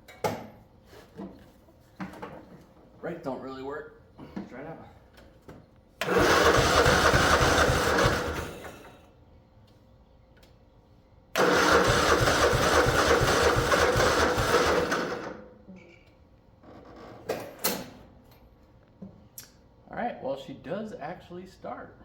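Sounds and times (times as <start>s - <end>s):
mower engine cranking: 6.0s - 9.0s, 11.4s - 15.4s.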